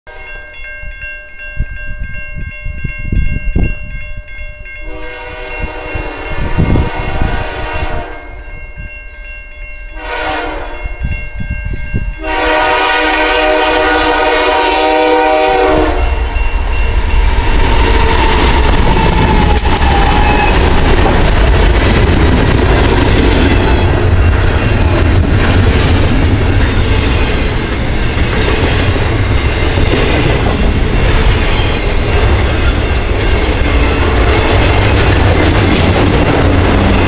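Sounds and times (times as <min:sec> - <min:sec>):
train passing with heavy rumble: 0:00.1 - 0:37.0
locomotive air horn blasts: 0:04.9 - 0:08.4, 0:10.0 - 0:10.9, 0:12.2 - 0:16.4.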